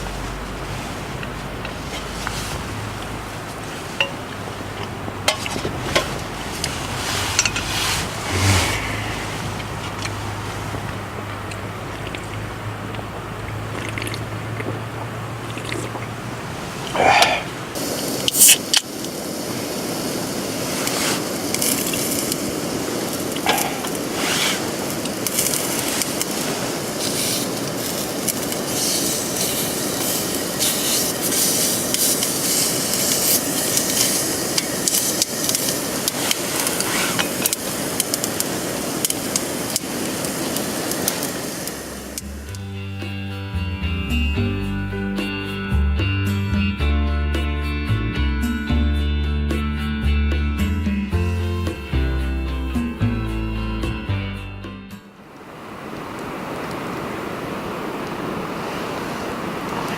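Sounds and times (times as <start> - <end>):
low hum: 0.0 - 18.3, 37.6 - 45.2
rushing splashing water: 0.0 - 42.6, 55.2 - 59.9.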